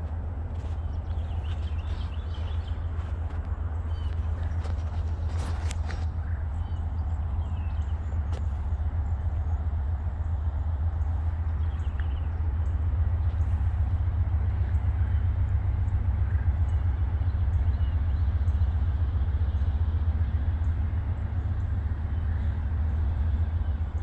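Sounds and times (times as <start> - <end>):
diesel locomotives rumbling: 0.0 - 24.0.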